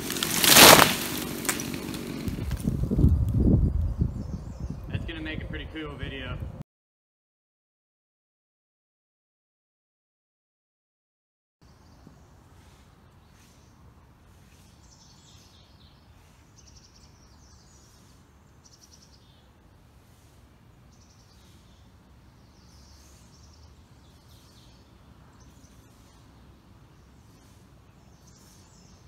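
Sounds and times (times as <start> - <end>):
songbirds chirping and singing: 14.4 - 19.6, 20.7 - 29.0.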